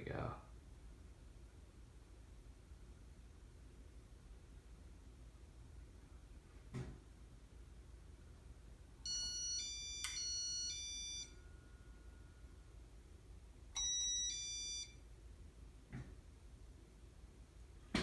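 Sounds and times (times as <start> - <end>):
electronic beeps changing pitch: 9.1 - 11.4.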